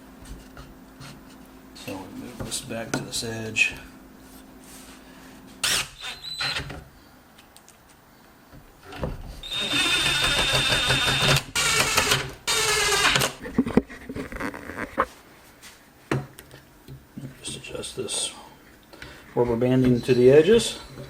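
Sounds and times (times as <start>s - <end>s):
power tool motor whining: 5.6s - 6.7s, 9.4s - 13.4s.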